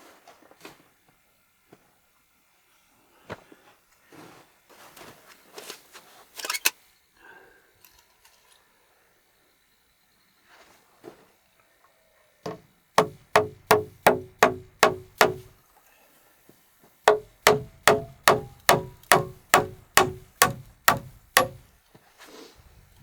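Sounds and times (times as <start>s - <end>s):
hand tool striking wood: 12.5s - 15.5s, 17.1s - 21.6s.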